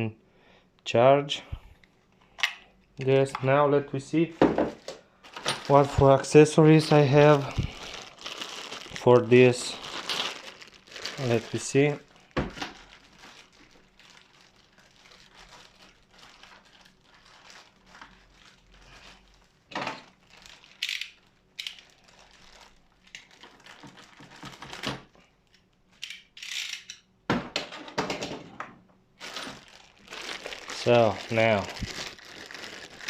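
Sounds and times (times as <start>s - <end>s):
plastic packaging crinkling: 4.6s - 25.2s, 29.2s - 33.0s.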